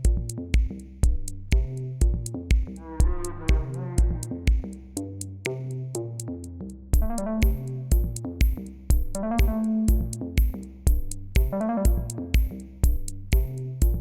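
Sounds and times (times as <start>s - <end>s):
drum machine beat: 0.0s - 6.0s, 7.0s - 14.0s
synthesizer melody: 7.0s - 8.2s, 9.2s - 10.2s, 11.4s - 12.4s.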